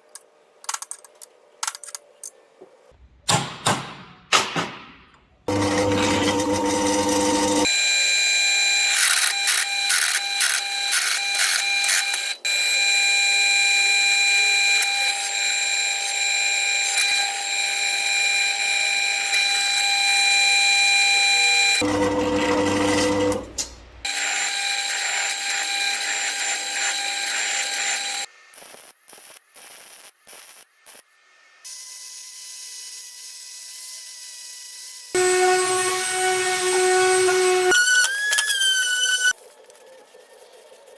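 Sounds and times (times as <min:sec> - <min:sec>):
power tool whining: 0:05.5 - 0:28.3, 0:35.1 - 0:39.4.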